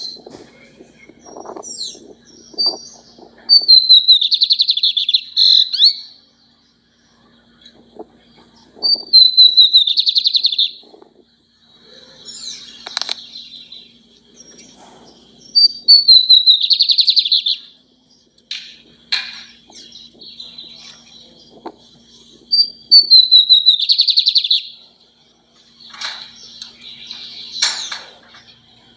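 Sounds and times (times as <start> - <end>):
bird whistling and trilling: 0.9 - 6.2, 8.7 - 10.9, 14.7 - 17.8, 22.3 - 24.8.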